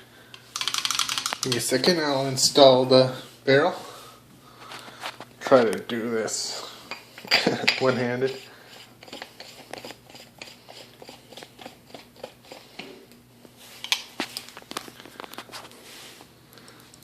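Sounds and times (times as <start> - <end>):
small metal clicks and scrapes: 0.3 - 1.8.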